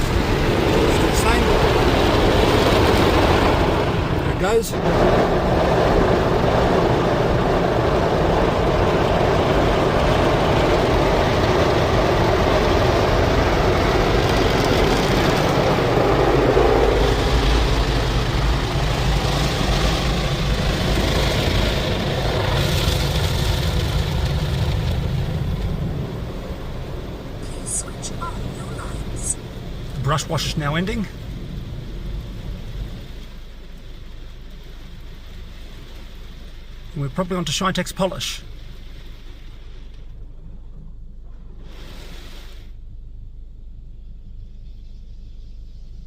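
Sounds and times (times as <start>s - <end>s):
car wash brushes rushing: 0.0s - 40.0s
hiss: 41.6s - 42.8s, 44.3s - 46.0s.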